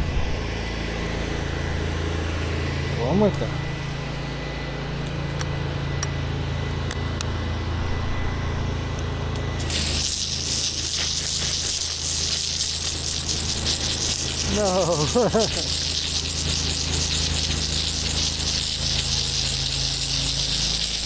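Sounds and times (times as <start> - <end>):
pressure washer engine running: 9.5 - 21.0
high-pressure water spray hiss: 9.6 - 21.0.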